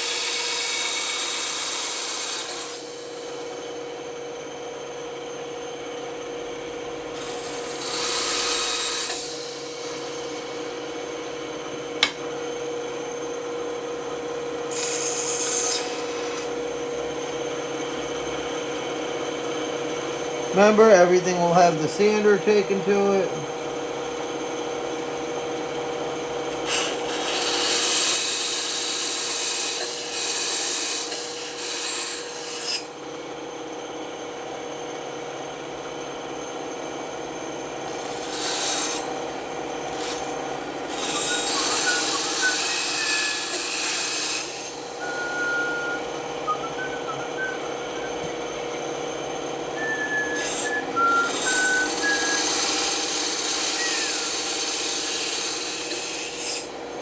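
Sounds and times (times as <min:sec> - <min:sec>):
saw blade cutting wood: 0:00.0 - 0:03.1, 0:07.2 - 0:10.6, 0:14.7 - 0:16.6, 0:26.5 - 0:32.9, 0:37.9 - 0:39.2, 0:39.9 - 0:48.4, 0:49.8 - 0:56.8
band saw running: 0:00.0 - 0:57.0
high squeaks: 0:41.0 - 0:43.6, 0:44.8 - 0:48.4.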